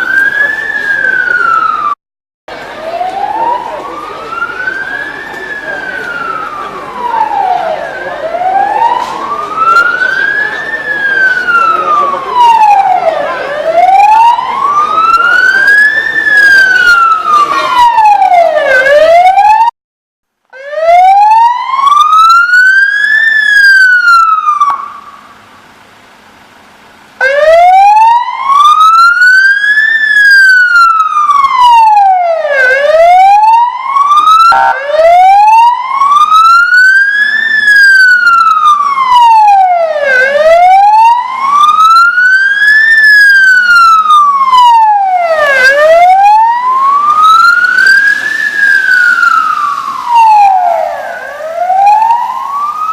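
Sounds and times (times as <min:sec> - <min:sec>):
emergency siren wailing: 0:00.0 - 0:19.8, 0:20.5 - 0:25.5, 0:27.2 - 0:52.9.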